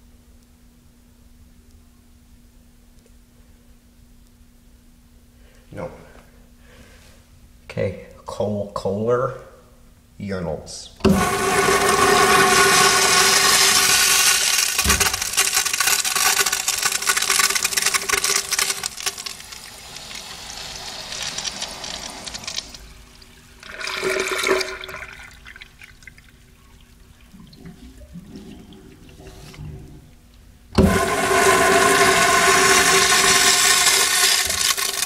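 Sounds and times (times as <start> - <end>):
low steady hum: 0.0 - 35.0
urinal flushing: 11.0 - 35.0.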